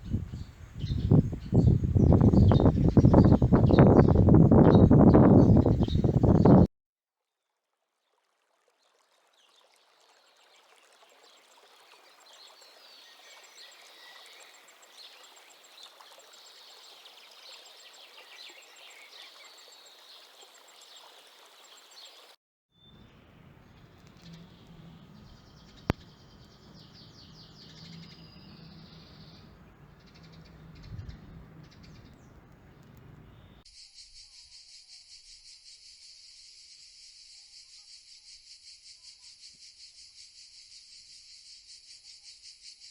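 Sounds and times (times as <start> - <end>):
small birds chirping: 0.0 - 6.7, 12.4 - 34.6
low hum: 23.0 - 33.6
insect trill: 33.7 - 42.9.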